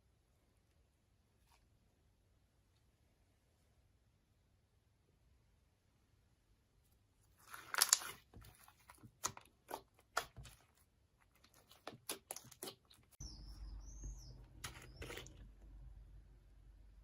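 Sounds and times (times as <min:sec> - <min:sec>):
slime crackling and popping: 0:07.4 - 0:10.6.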